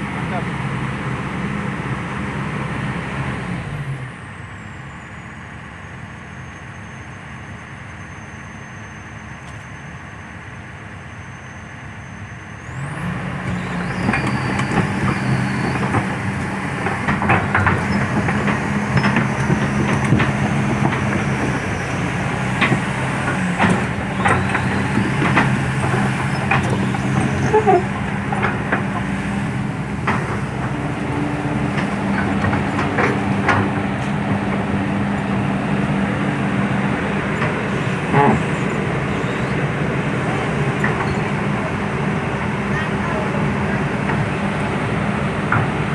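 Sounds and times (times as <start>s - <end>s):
diesel machinery engine droning: 0.0s - 45.9s
brief squeals: 13.5s - 16.0s, 26.2s - 28.0s.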